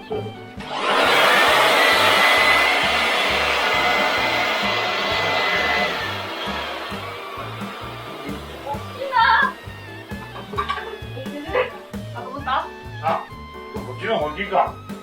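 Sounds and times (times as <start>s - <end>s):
electric air blower running: 0.6s - 11.3s.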